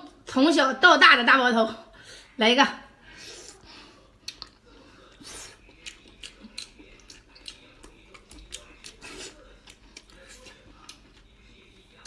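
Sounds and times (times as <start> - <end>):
lip smacks: 4.2 - 4.6.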